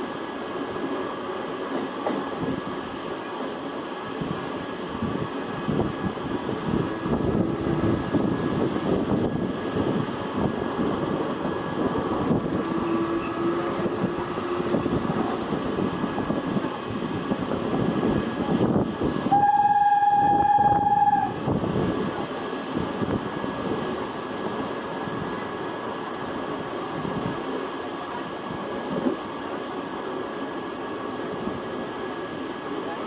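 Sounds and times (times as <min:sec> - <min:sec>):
train passing: 0:00.0 - 0:33.0
train horn blast: 0:19.3 - 0:21.4.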